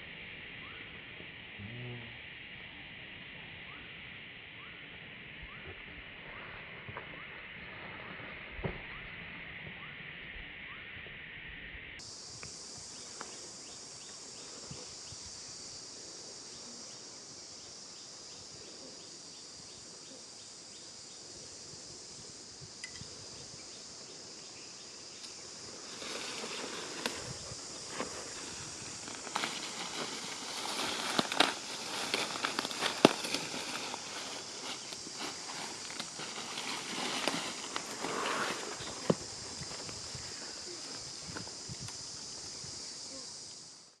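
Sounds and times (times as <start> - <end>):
steady high-pitched hiss: 0.0 - 44.0
rustling: 25.2 - 42.0.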